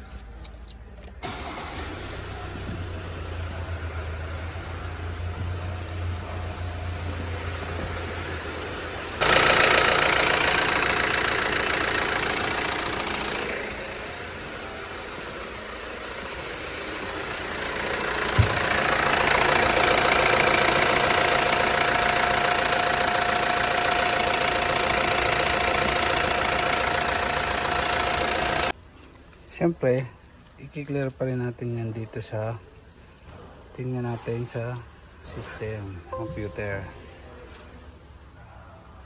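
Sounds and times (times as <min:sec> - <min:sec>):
car engine running with whine: 0:01.2 - 0:28.7.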